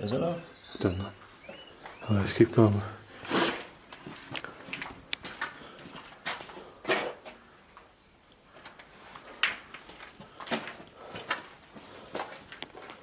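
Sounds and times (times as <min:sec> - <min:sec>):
footsteps knocking and scuffing: 0:09.8 - 0:13.0.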